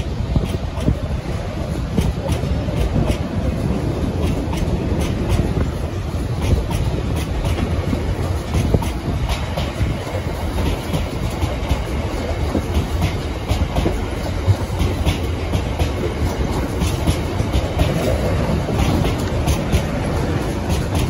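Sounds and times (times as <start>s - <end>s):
freight train wheels rumbling: 0.0s - 21.0s
wheels clacking over rail joints: 0.0s - 21.0s.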